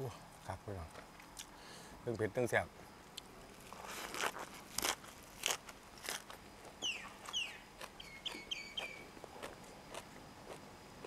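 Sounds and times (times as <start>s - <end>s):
crunchy chewing: 3.1s - 11.0s
bird chirping: 6.8s - 9.1s.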